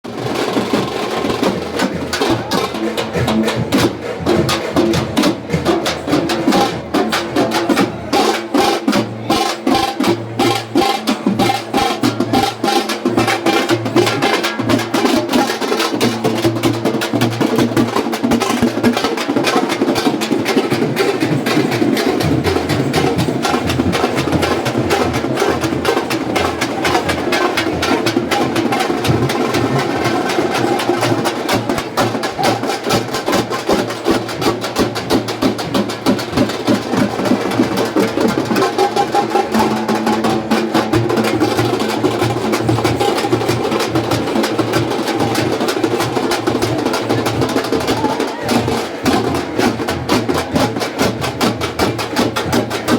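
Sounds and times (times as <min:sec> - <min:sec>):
music with fast dense drumming: 0:00.0 - 0:52.9.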